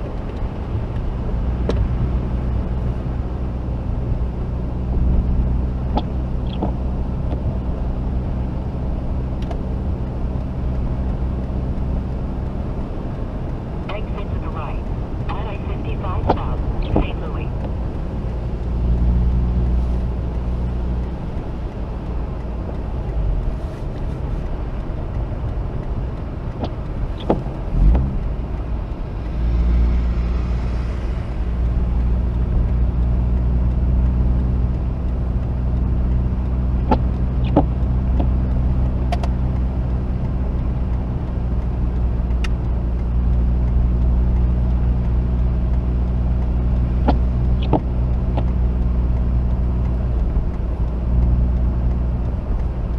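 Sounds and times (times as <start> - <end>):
car engine droning: 0.0 - 52.9
sharp clicks: 44.4 - 52.9.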